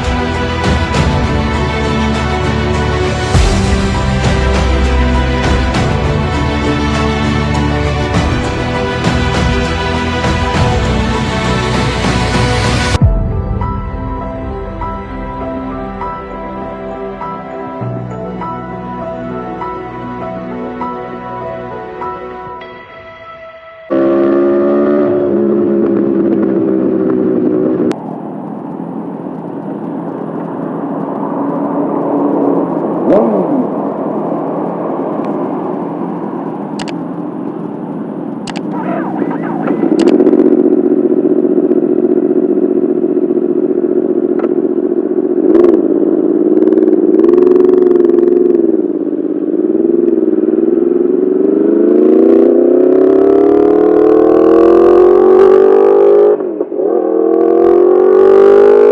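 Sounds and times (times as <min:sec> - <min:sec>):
motorcycle engine accelerating: 0:23.9 - 0:58.9
sharp clicks: 0:36.8 - 0:37.1, 0:38.4 - 0:38.8, 0:39.7 - 0:40.2.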